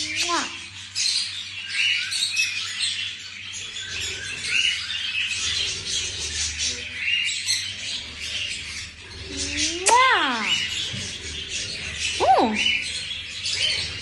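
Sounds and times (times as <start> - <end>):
parrot chirping and chattering: 0.0 - 14.0.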